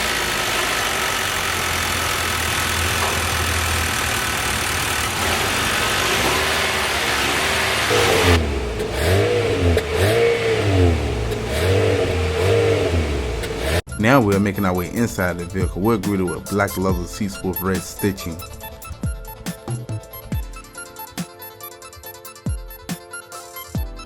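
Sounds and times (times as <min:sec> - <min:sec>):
car engine idling: 0:00.0 - 0:13.8
engine revving: 0:00.0 - 0:13.9.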